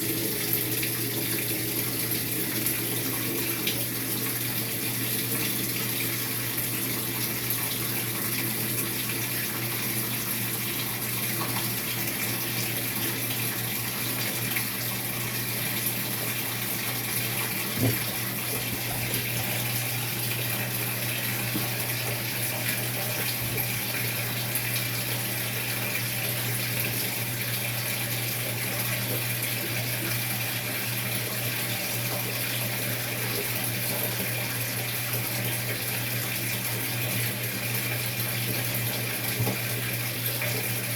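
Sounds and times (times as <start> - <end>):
water pouring into washer tub: 0.0 - 40.9.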